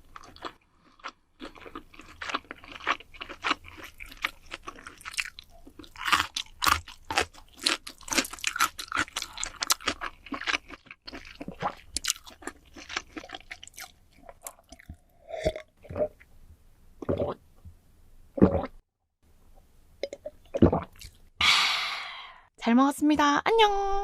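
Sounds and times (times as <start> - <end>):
chewing crunchy food: 0.0 - 16.3, 20.6 - 21.2.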